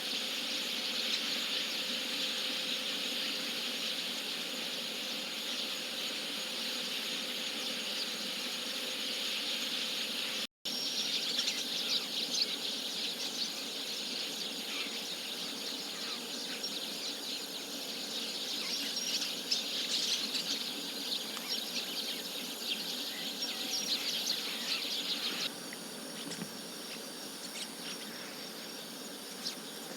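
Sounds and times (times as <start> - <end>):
insect-like hiss: 0.0 - 29.9
starlings chirping: 9.2 - 29.9.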